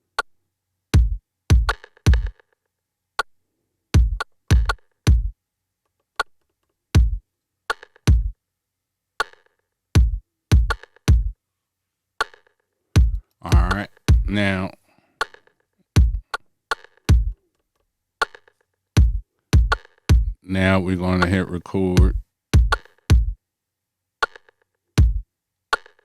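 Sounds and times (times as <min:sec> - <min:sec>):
kick drum hits: 0:01.0 - 0:02.3, 0:04.0 - 0:05.3, 0:07.0 - 0:07.2, 0:08.1 - 0:08.3, 0:10.0 - 0:11.4, 0:13.0 - 0:14.4, 0:16.0 - 0:16.2, 0:17.1 - 0:17.4, 0:19.0 - 0:20.4, 0:22.0 - 0:23.4, 0:25.0 - 0:25.2.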